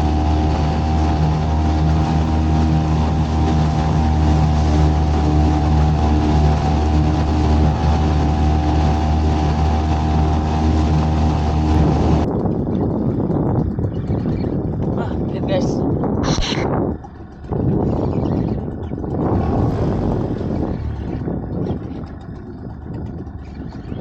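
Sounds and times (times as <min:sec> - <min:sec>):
outboard motor running: 0:00.0 - 0:24.0
rough wind: 0:00.0 - 0:24.0
water noise: 0:00.0 - 0:24.0.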